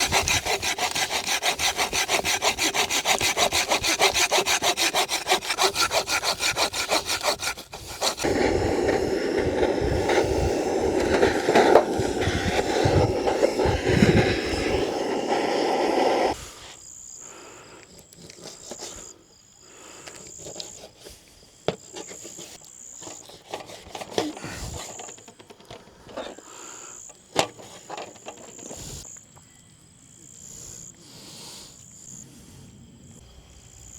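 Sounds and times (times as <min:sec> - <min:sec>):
hand saw cutting wood: 0:00.0 - 0:16.4, 0:18.2 - 0:19.0, 0:21.8 - 0:26.4, 0:27.4 - 0:29.0
crickets chirping: 0:00.0 - 0:33.9.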